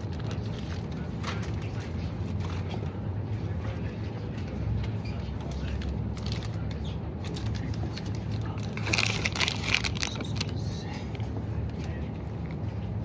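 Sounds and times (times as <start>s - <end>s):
rattling and crinkling: 7.2s - 10.5s.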